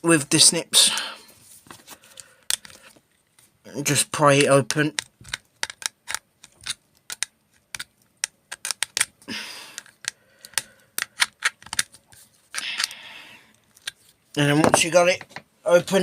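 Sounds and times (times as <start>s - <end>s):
sharp clicks and snaps: 4.4s - 12.0s.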